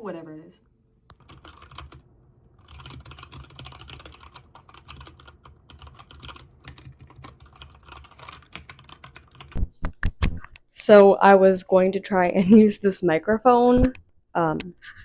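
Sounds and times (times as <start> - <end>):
mechanical keyboard typing: 1.1 - 2.0, 2.6 - 9.6.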